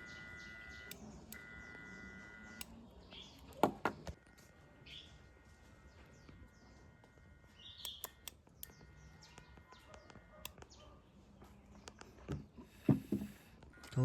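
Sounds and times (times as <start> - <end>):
faint bird chirps: 0.0 - 3.6, 4.2 - 12.3
light clicks: 7.8 - 9.4.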